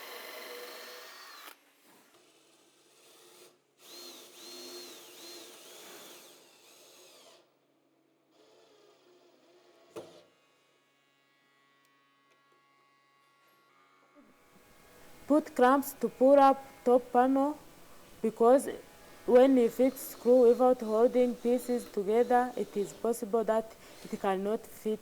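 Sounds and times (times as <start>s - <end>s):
power drill drilling wood: 0.0s - 7.5s, 14.6s - 25.0s.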